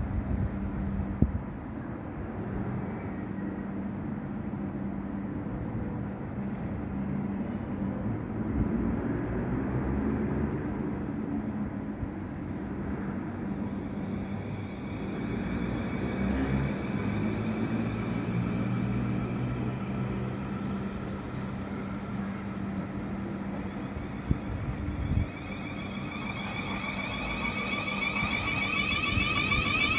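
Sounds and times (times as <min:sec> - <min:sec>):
train motor drone: 0:06.0 - 0:29.9.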